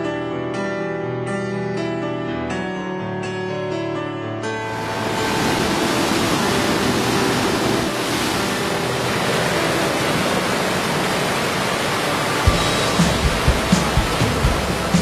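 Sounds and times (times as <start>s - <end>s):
flowing water rushing: 4.6s - 15.0s.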